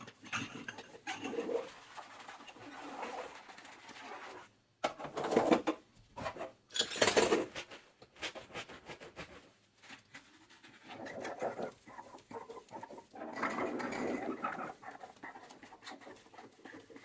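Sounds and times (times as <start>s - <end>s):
soapy sponge squishing: 8.2s - 17.0s.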